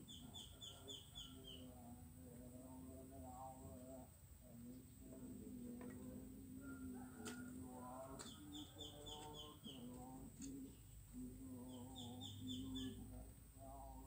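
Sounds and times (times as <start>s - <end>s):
birds chirping: 0.0s - 1.9s, 7.9s - 14.0s
low steady tone: 1.3s - 8.6s.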